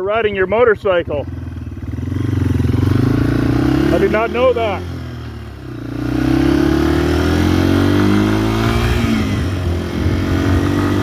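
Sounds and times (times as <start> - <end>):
motorcycle engine accelerating: 0.3 - 11.0.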